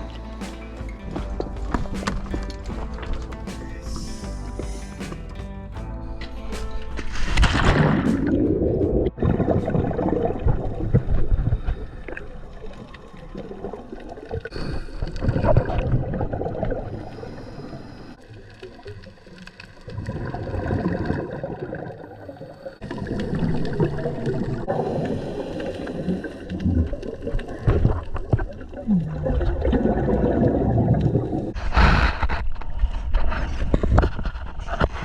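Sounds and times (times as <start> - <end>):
muffled underwater bubbles gurgling: 7.1 - 32.0.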